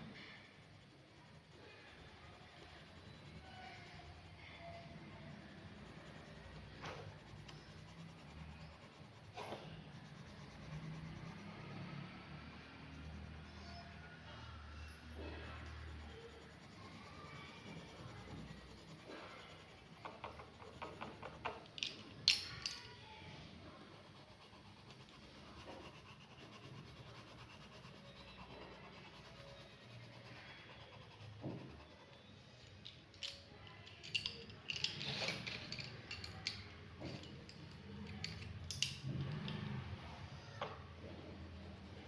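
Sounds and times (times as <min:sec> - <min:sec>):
pens clicking and tapping on desk: 0:17.3 - 0:22.9, 0:32.8 - 0:39.6.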